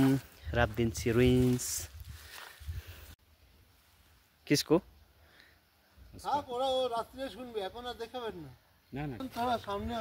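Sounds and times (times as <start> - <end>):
footsteps on forest trail: 0.0 - 3.2.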